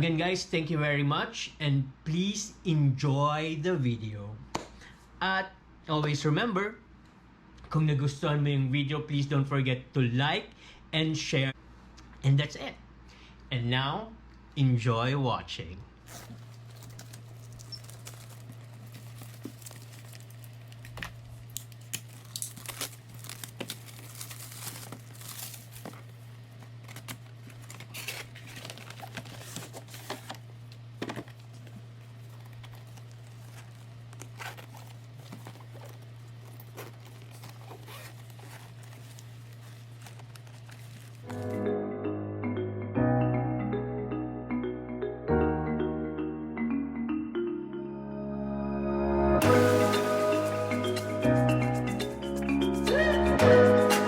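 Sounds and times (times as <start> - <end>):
packaging crinkling and tearing: 16.0 - 41.6.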